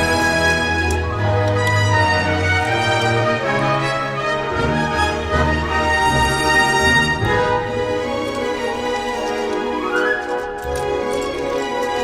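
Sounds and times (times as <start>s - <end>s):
orchestral music with strings: 0.0s - 12.0s.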